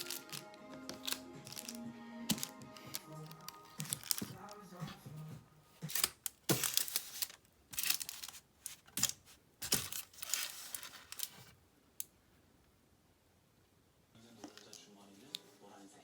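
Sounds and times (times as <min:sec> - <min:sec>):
packaging crinkling and tearing: 0:00.0 - 0:04.7, 0:05.8 - 0:11.5.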